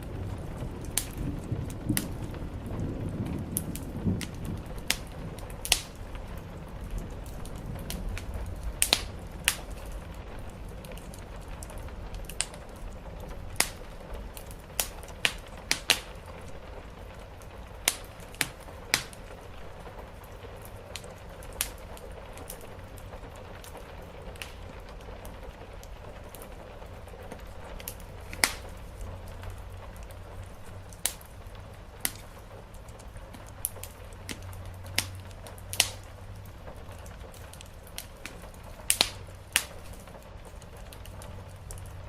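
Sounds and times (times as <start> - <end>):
thunder rumbling: 0.0 - 20.4
rain hissing: 0.0 - 42.0
wood fire crackling and popping: 0.0 - 42.0.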